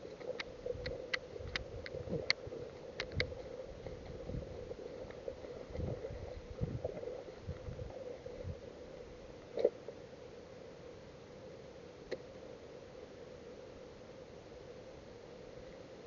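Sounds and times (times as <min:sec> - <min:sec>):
wind buffeting microphone: 0:03.0 - 0:04.8, 0:05.6 - 0:08.6.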